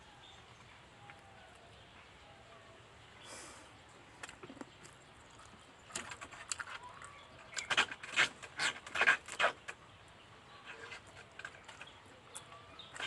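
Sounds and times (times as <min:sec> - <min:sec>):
wet chewing and lip smacks: 0:04.2 - 0:07.7.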